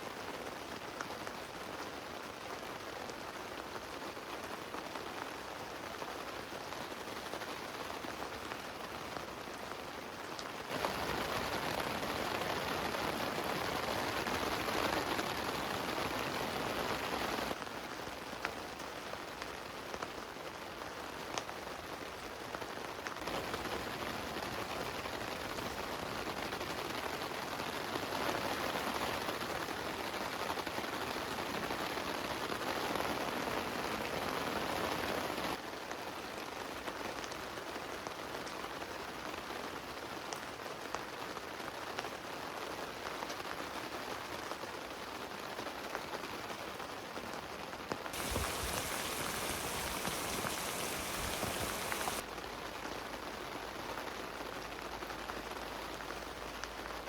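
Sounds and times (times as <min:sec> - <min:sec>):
heavy rain on a tent: 0:00.0 - 0:57.0
raindrops ticking: 0:48.2 - 0:52.2.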